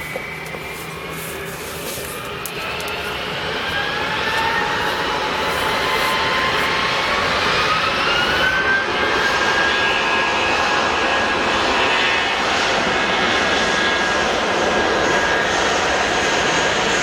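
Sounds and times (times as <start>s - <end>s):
airliner engines whining: 0.0s - 17.0s.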